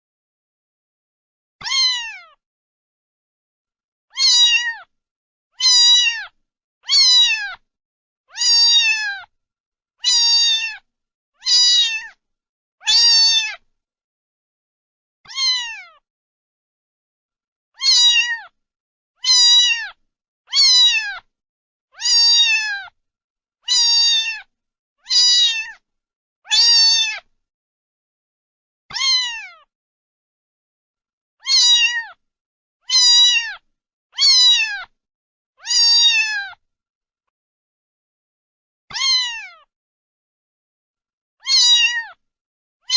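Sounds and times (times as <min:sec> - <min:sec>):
cat meowing: 0:01.6 - 0:02.4, 0:04.1 - 0:04.9, 0:05.6 - 0:07.6, 0:08.3 - 0:09.3, 0:10.0 - 0:12.2, 0:12.8 - 0:13.6, 0:15.3 - 0:16.0, 0:17.8 - 0:18.6, 0:19.2 - 0:21.3, 0:22.0 - 0:23.0, 0:23.6 - 0:25.8, 0:26.5 - 0:27.3, 0:28.9 - 0:29.7, 0:31.4 - 0:32.2, 0:32.8 - 0:35.0, 0:35.6 - 0:36.6, 0:38.9 - 0:39.7, 0:41.4 - 0:42.2.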